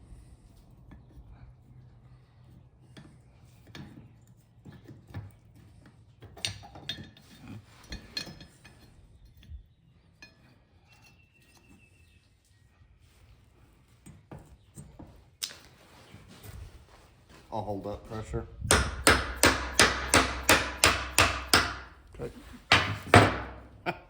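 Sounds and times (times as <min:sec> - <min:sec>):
metal tools clinking and knocking: 0:06.2 - 0:09.6.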